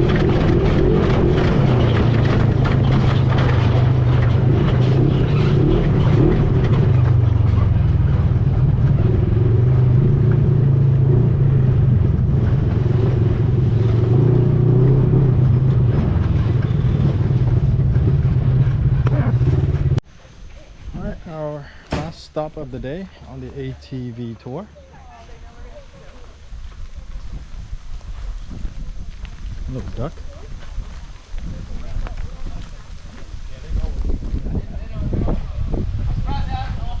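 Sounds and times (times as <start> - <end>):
atv engine running: 0.0 - 21.1.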